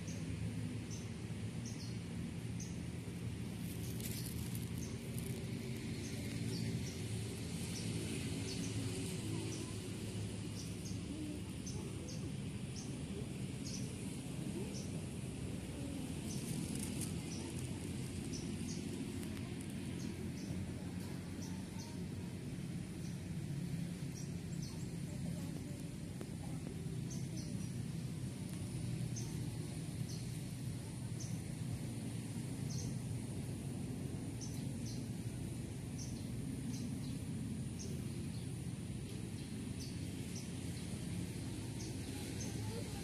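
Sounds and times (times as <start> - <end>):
low background hum: 0.0 - 43.0
small bird chirping: 3.6 - 15.0, 15.8 - 22.0, 23.0 - 31.5, 32.6 - 33.1, 34.3 - 43.0.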